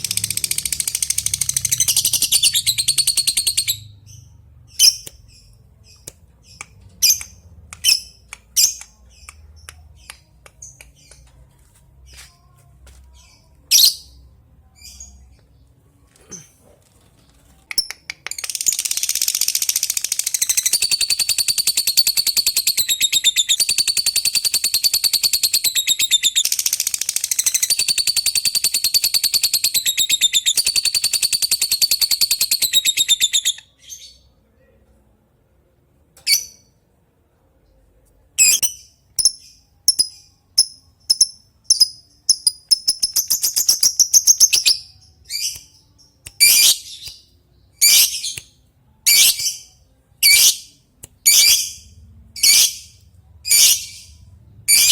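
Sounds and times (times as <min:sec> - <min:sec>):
lovebird chirping and trilling: 0:00.0 - 0:09.3, 0:17.8 - 0:34.1, 0:38.4 - 0:45.7, 0:46.4 - 0:47.2, 0:47.8 - 0:48.4, 0:49.1 - 0:50.7, 0:51.3 - 0:51.8, 0:52.4 - 0:54.9.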